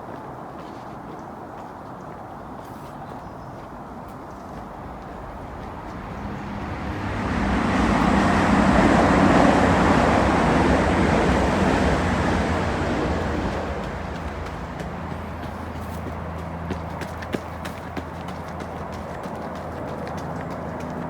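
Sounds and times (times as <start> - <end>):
passing vehicle rush: 4.5 - 21.0.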